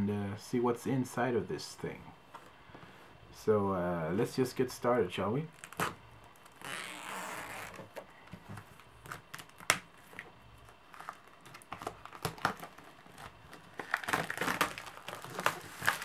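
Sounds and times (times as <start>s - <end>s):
plastic wrap crinkling: 8.6s - 16.0s.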